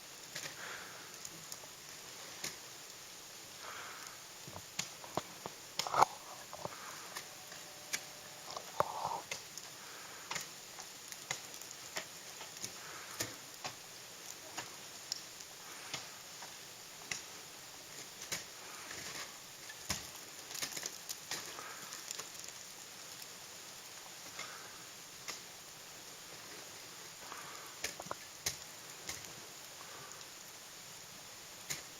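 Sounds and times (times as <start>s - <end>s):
faint steady hiss: 0.0s - 31.9s
ice axes striking ice: 11.2s - 13.8s, 18.2s - 21.6s.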